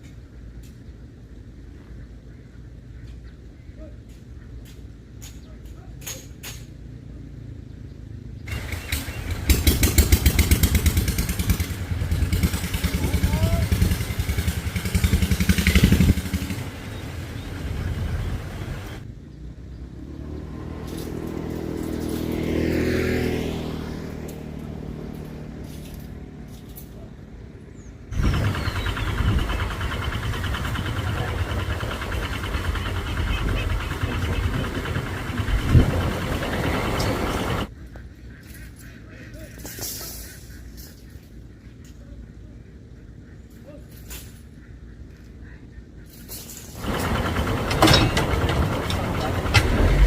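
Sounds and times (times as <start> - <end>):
vehicle engine passing by: 7.0 - 37.7, 46.8 - 50.0
steady engine running: 8.5 - 19.0, 28.1 - 37.7, 46.8 - 50.0.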